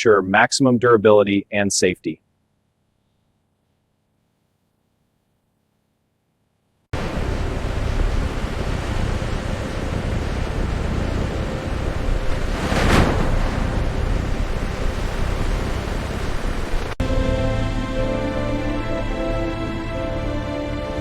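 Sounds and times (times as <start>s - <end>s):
loud rushing noise: 10.8s - 17.0s.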